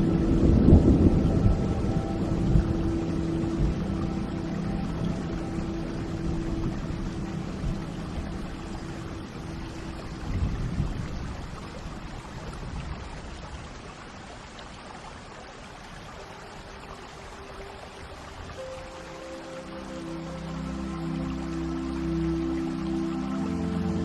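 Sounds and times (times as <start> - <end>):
low rumble of thunder: 0.0 - 13.3
soft music tones: 0.0 - 24.0
steady rain: 0.0 - 24.0.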